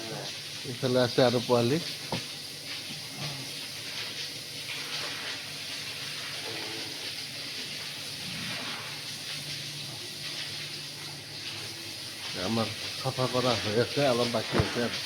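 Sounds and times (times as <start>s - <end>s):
water running from a hose: 0.0s - 15.0s.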